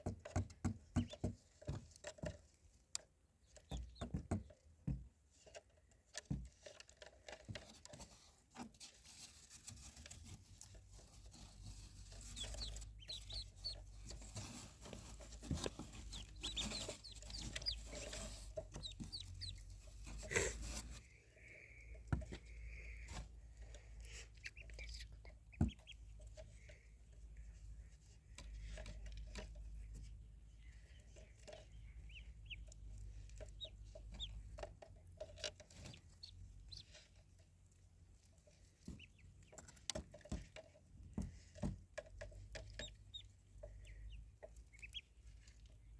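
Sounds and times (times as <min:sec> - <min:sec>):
chicks peeping: 0:09.4 - 0:23.2, 0:24.0 - 0:26.4, 0:30.8 - 0:37.2, 0:38.6 - 0:39.9, 0:42.3 - 0:45.9.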